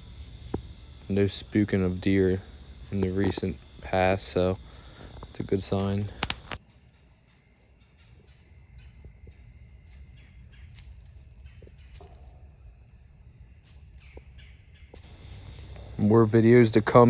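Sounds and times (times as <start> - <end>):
crickets chirring: 0.0 - 17.0
low background rumble: 15.0 - 17.0.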